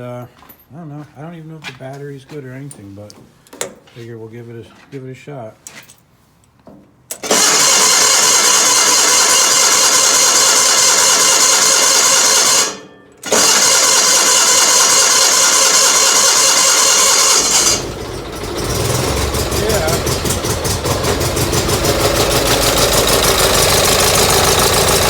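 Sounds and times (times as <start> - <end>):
engine starter cranking: 7.1 - 25.0
engine running: 7.2 - 25.0.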